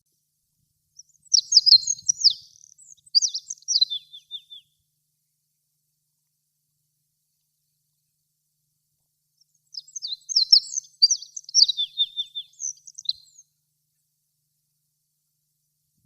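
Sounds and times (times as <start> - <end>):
pipit singing: 1.0 - 4.7, 9.4 - 13.5.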